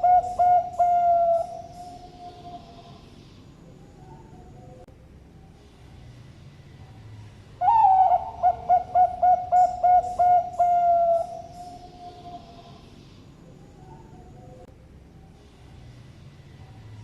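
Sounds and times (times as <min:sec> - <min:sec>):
dove cooing song: 0:00.0 - 0:03.2, 0:07.6 - 0:12.9
faint background dove calls: 0:00.0 - 0:17.0.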